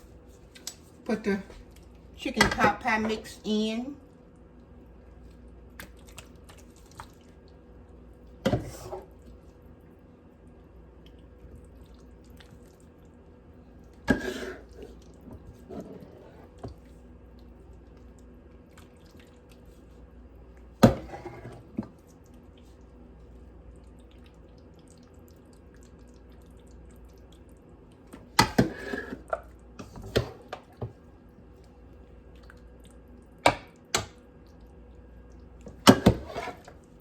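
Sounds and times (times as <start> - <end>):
wet plops and drips of filling: 4.6 - 8.0, 16.6 - 20.0, 21.9 - 28.4, 31.6 - 35.9.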